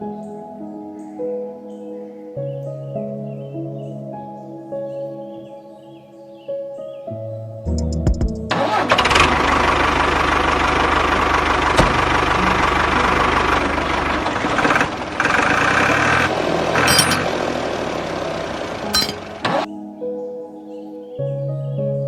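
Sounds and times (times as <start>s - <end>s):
small tractor motor running: 8.5s - 19.7s.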